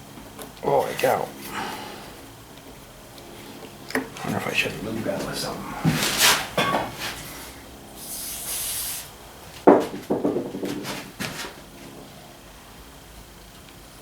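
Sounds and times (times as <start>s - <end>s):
aerosol spray hiss: 7.9s - 9.2s
loud knock: 9.7s - 11.0s.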